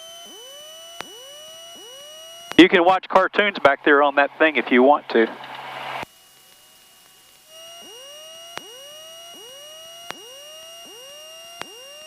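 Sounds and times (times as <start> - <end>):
steady high whine: 0.0 - 12.0.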